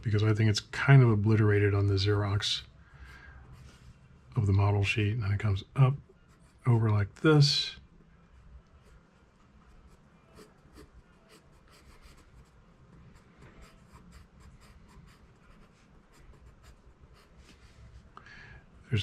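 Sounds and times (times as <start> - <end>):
pencil scratching on paper: 9.7 - 17.4.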